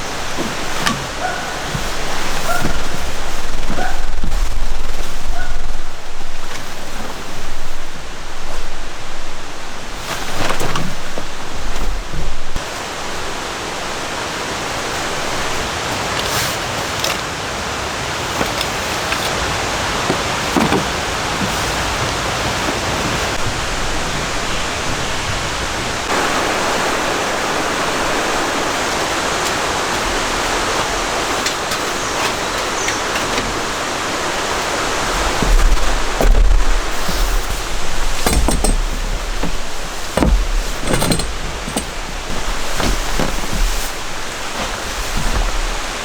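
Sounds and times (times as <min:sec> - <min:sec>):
low thumps and knocks: 0:00.0 - 0:14.0, 0:33.0 - 0:46.0
rain falling: 0:00.0 - 0:46.0.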